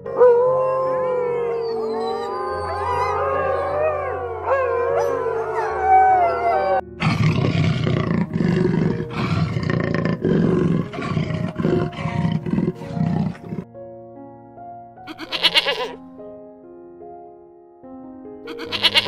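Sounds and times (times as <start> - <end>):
wolves howling: 0.0 - 13.6
snow leopards snarling: 7.0 - 13.6.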